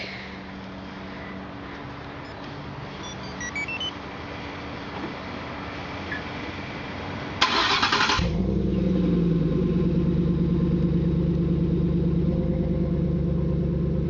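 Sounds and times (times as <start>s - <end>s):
truck engine idling: 7.0s - 14.0s.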